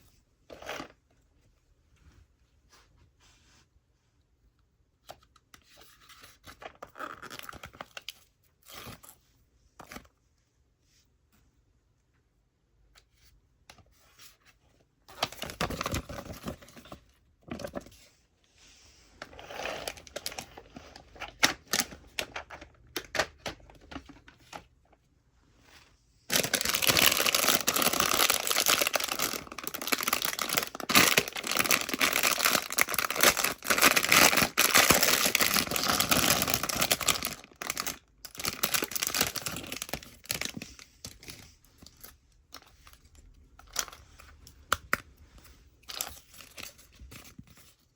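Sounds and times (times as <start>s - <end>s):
toy packaging tearing and crinkling: 0.5s - 1.0s, 6.4s - 9.1s, 15.1s - 17.7s, 19.2s - 24.6s, 26.3s - 41.4s, 45.8s - 47.8s.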